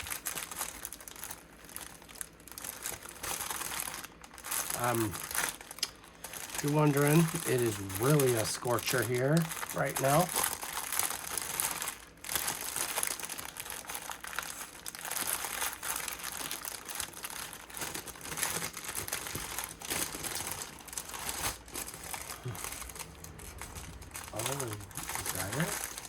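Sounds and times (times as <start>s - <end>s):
plastic bags crinkling: 0.0s - 26.0s.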